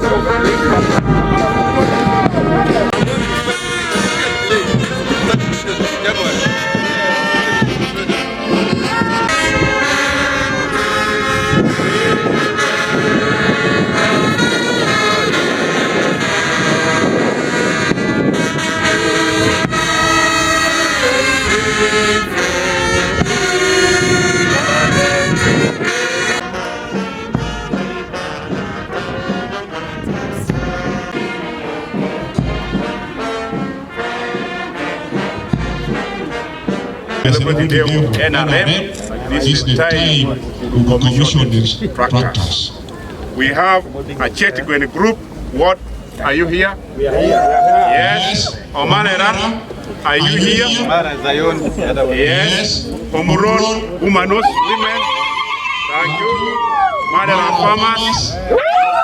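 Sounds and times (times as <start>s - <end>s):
low thuds: 0.0s - 43.4s
brass band playing: 0.0s - 58.7s.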